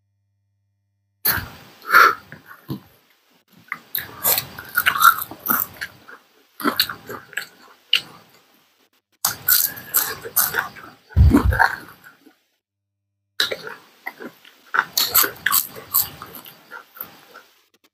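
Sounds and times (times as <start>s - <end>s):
people chewing loudly: 3.7s - 8.4s, 9.3s - 12.2s, 13.4s - 17.5s.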